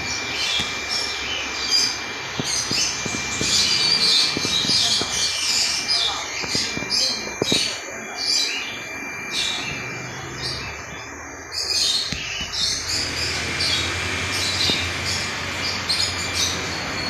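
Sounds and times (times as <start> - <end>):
caged birds chirping: 0.0 - 17.0.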